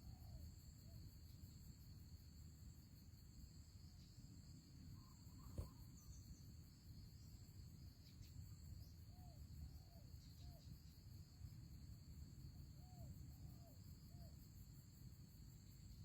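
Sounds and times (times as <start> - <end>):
single click: 5.5 - 5.7.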